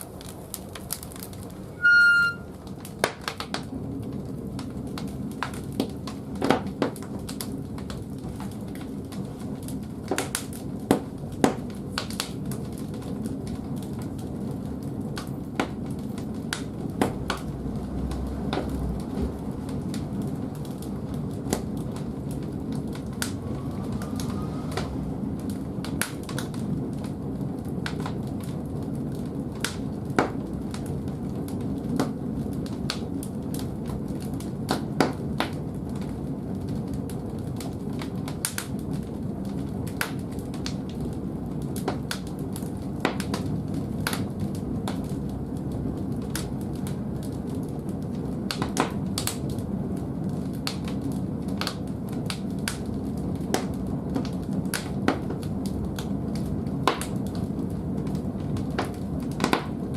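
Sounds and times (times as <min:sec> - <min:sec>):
fire rumbling: 0:00.0 - 0:59.9
wood crackling and popping: 0:00.0 - 0:59.9.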